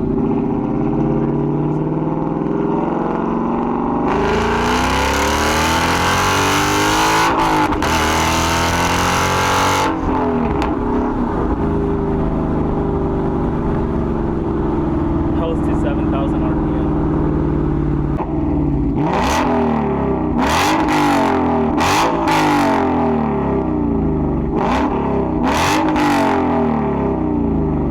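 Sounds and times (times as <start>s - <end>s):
car engine revving: 0.0s - 27.9s
exhaust pop: 7.2s - 8.0s, 9.8s - 19.2s.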